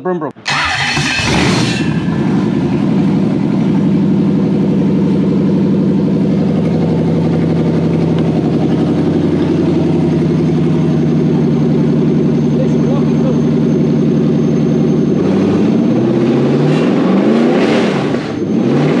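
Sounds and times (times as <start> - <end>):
car engine starting and idling: 0.2 - 19.0.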